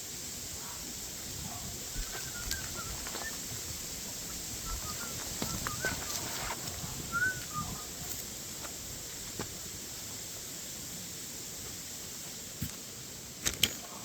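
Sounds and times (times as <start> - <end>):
steady hiss: 0.0 - 14.0
short bird chirps: 2.0 - 3.5, 4.6 - 6.4.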